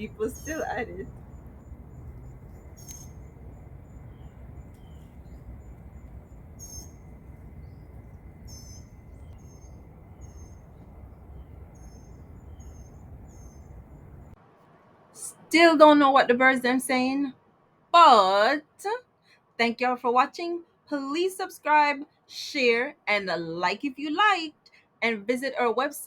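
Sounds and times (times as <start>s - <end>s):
songbirds chirping: 0.0s - 14.4s
faint background noise: 0.0s - 26.0s.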